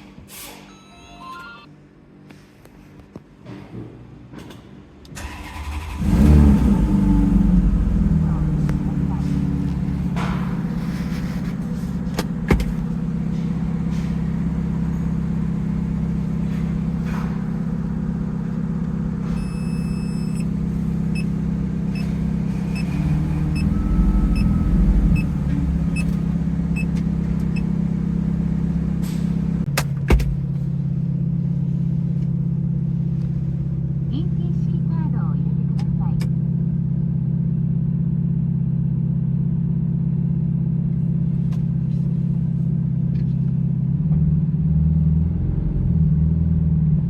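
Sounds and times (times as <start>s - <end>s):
short high beep: 0.7s - 1.7s, 19.3s - 20.5s, 23.5s - 25.3s
car engine idling: 5.0s - 47.0s.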